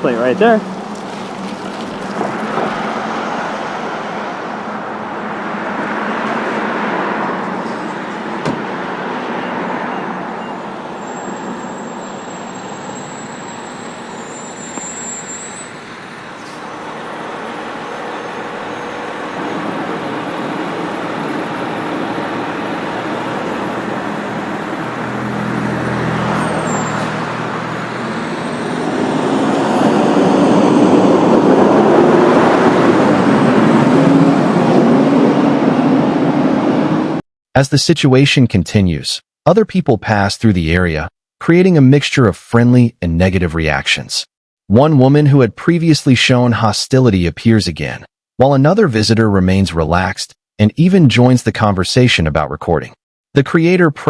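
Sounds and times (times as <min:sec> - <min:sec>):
cars passing: 0:00.0 - 0:37.2.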